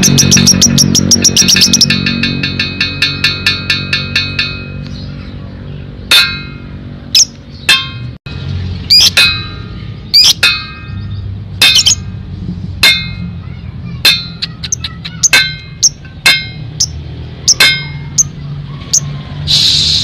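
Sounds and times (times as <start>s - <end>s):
lovebird trilling and chirping: 0.0s - 3.7s, 7.1s - 7.8s, 8.8s - 12.1s, 14.0s - 19.1s
background music hum: 0.0s - 18.5s.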